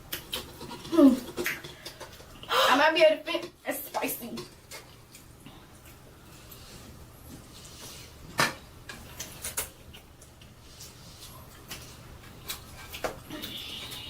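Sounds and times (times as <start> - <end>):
faint hum: 4.4 - 14.0.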